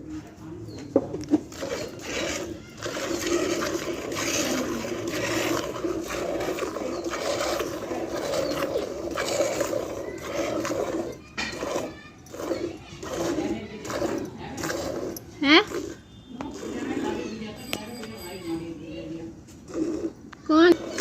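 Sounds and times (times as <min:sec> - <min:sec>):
milk squirting into metal pail: 0:01.2 - 0:18.4.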